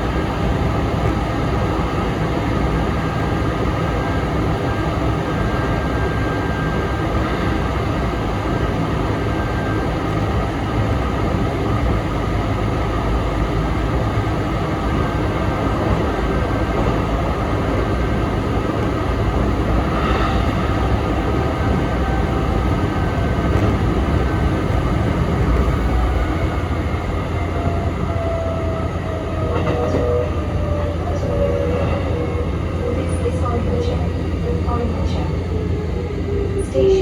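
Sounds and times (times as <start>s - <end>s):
train wheels rumbling: 0.0s - 37.0s.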